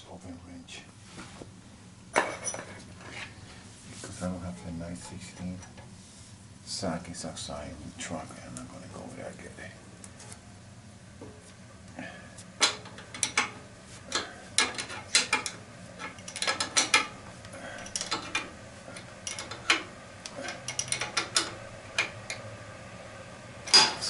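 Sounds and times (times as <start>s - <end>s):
steady low hum: 0.0s - 24.0s
hand tools clicking and clanking: 12.6s - 22.4s, 23.7s - 24.0s.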